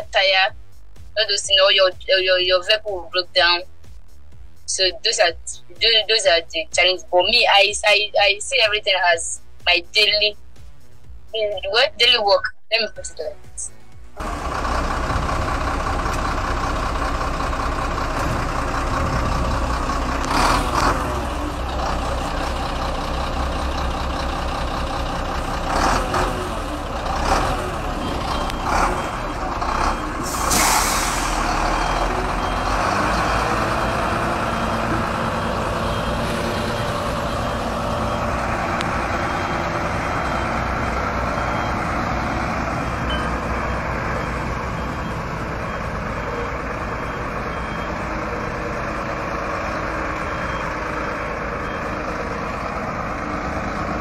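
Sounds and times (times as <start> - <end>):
heavy truck running: 0.0 - 54.0
faint high beep: 43.0 - 46.5.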